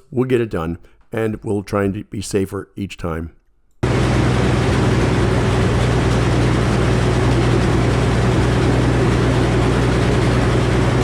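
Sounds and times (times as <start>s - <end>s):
circular saw blade spinning: 3.8s - 11.0s
sawmill running: 3.8s - 11.0s.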